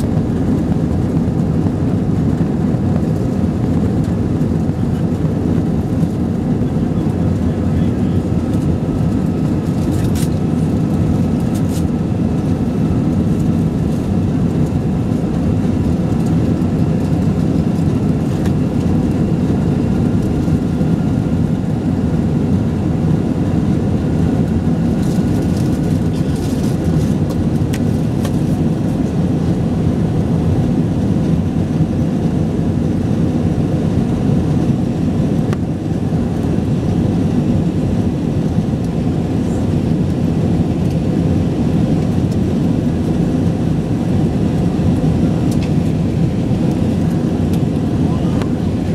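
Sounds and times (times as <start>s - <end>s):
jet engine and airflow roar: 0.0s - 48.9s.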